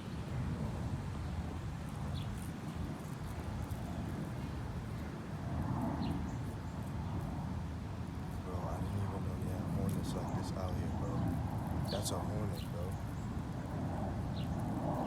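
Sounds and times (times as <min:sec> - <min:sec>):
low city rumble: 0:00.0 - 0:15.0.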